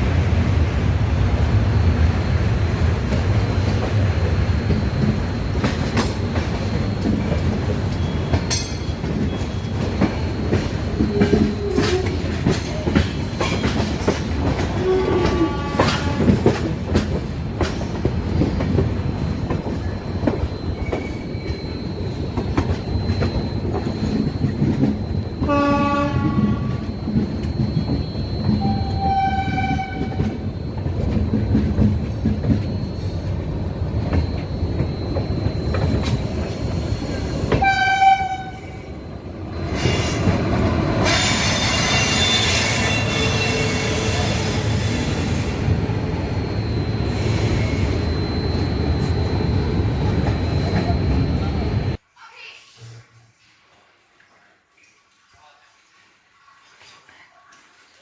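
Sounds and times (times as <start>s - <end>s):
train rumbling: 0.0s - 52.0s
wheels clattering over rail joints: 3.0s - 38.8s
train horn: 14.5s - 16.6s, 25.4s - 27.0s, 28.6s - 30.4s, 37.5s - 38.9s, 41.0s - 45.2s.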